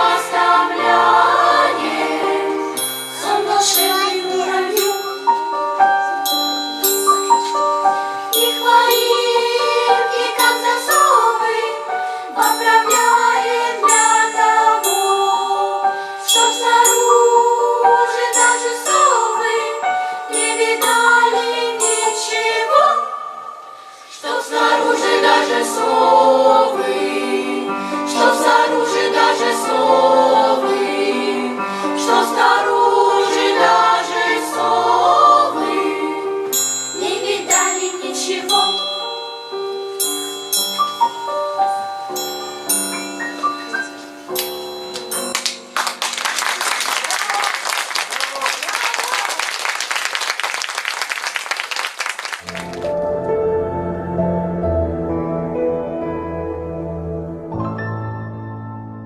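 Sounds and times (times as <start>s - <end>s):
children's choir singing: 0.0s - 6.4s, 8.4s - 39.8s
instrumental accompaniment: 0.0s - 46.8s, 52.4s - 59.0s.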